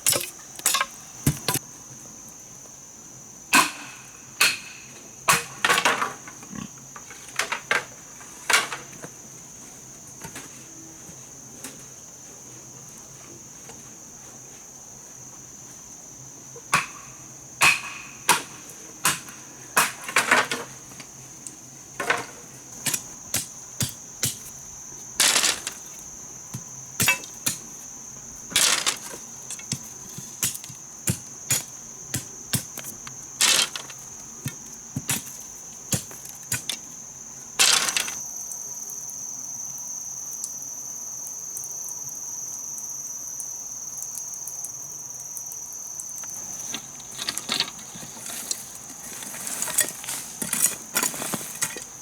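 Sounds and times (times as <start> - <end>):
crickets droning: 0.0 - 52.0
chopping strikes on wood: 0.1 - 1.6, 3.6 - 5.6, 16.7 - 18.5, 22.9 - 24.5, 26.5 - 27.7, 28.6 - 36.8.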